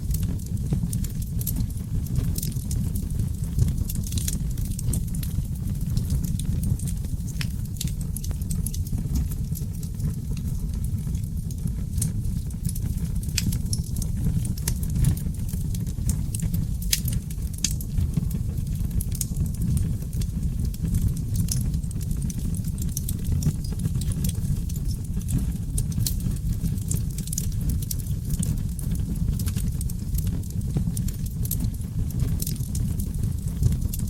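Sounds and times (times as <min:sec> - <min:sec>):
wood fire crackling and popping: 0:00.0 - 0:34.0.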